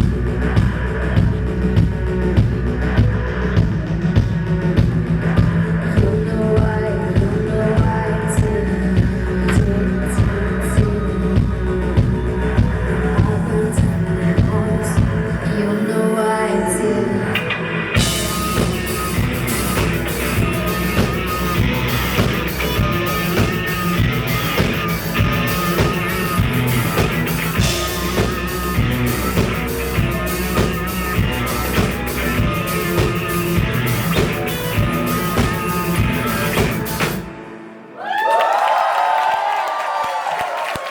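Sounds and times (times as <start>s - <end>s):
live rock band playing: 17.4s - 37.6s
audience cheering and whooping: 38.0s - 40.9s.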